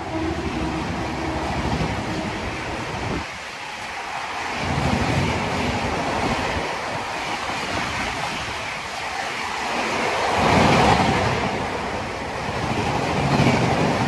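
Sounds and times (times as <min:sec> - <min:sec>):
train coaches rushing past: 0:00.0 - 0:14.0.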